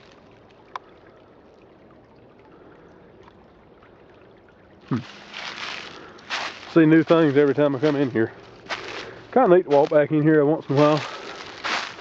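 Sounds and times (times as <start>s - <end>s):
creek water flowing over rocks: 0.0s - 12.0s.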